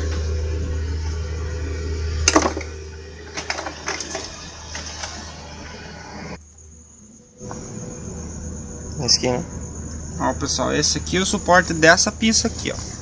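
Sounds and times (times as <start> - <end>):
steady low hum: 0.0 - 13.0
small hard parts clacking: 3.4 - 5.3.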